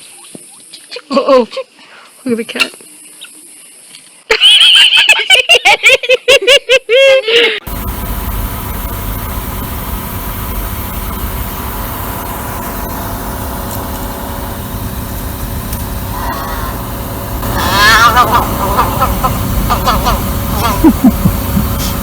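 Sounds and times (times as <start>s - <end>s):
motor vehicle rumbling: 7.7s - 22.0s
faint voices: 16.2s - 22.0s.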